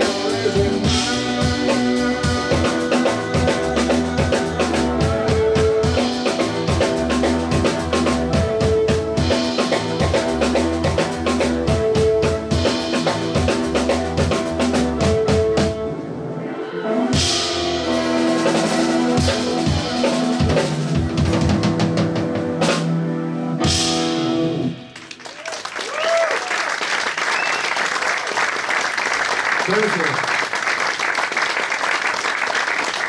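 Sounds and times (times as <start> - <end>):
bass: 0.0 - 16.0, 17.1 - 25.3
drum kit beat: 0.0 - 16.0, 17.1 - 24.9
guitar: 0.0 - 25.1.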